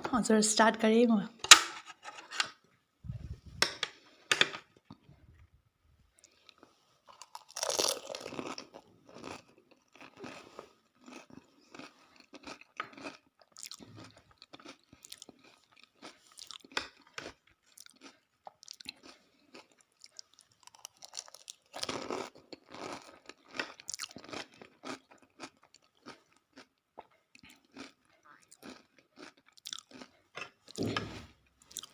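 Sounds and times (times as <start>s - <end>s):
crunching crisp food: 6.2s - 30.9s, 31.6s - 31.9s
wet chewing: 6.2s - 31.0s.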